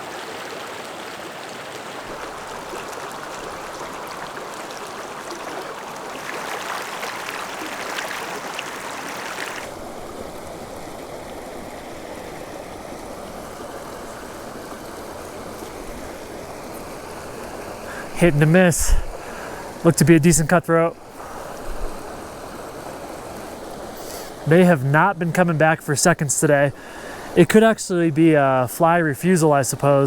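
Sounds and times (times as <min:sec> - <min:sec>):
water rushing over rocks: 0:00.0 - 0:10.1.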